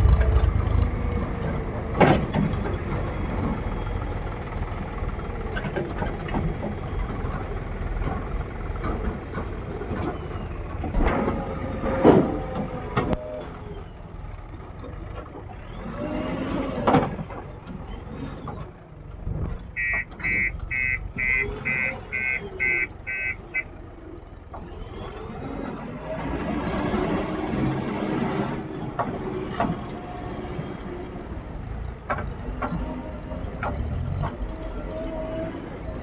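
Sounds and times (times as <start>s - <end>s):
diesel engine running: 0.0s - 36.0s
reversing alarm beeping: 19.8s - 23.7s.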